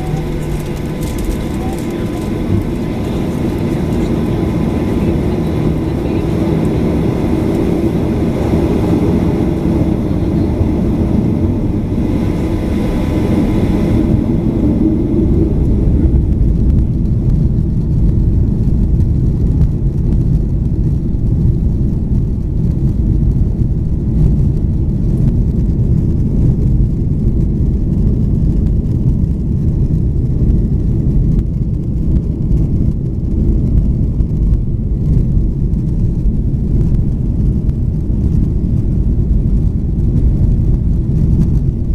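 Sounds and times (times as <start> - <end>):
steady whining tones and hiss: 0.0 - 8.0
jet engines low rumble: 0.0 - 41.9.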